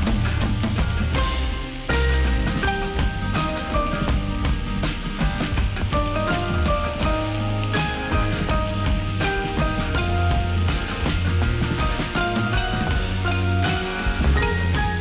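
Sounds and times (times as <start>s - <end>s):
background music: 0.0s - 15.0s
oil popping: 0.0s - 15.0s
oil sizzling in a wok: 0.0s - 15.0s.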